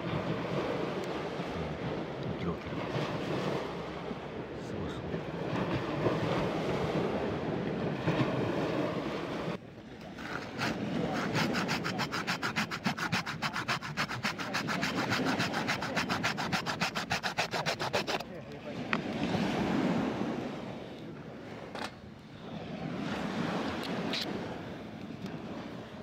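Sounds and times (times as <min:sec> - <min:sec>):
surf: 0:00.0 - 0:26.0
wind: 0:00.0 - 0:26.0
hand saw cutting wood: 0:10.2 - 0:18.2.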